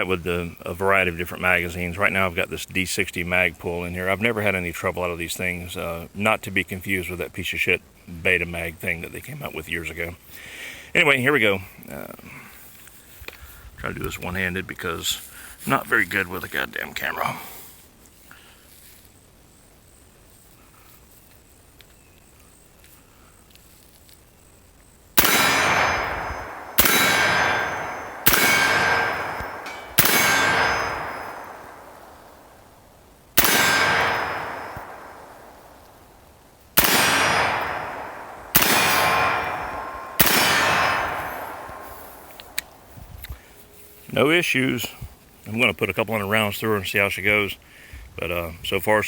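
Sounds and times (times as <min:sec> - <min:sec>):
rifle shots with ringing echo: 0:25.2 - 0:32.8, 0:33.4 - 0:42.9.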